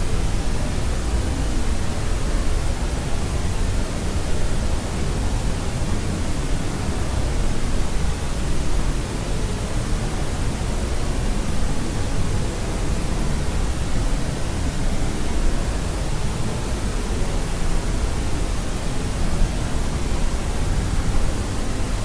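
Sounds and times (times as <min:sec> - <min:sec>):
deep white noise: 0:00.0 - 0:22.0.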